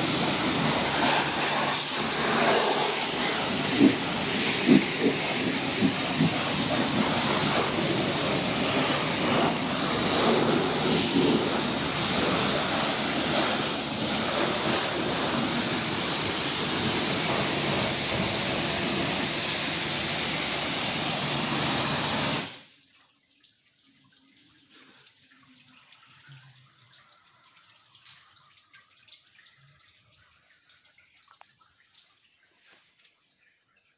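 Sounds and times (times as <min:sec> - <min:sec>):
high-pressure water jet hissing: 0:00.0 - 0:22.6
faint water drips: 0:22.6 - 0:33.9.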